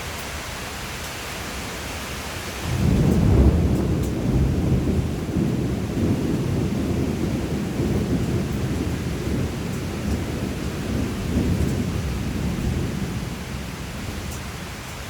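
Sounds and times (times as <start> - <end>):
steady rain: 0.0 - 15.0
rolling thunder: 2.7 - 14.3.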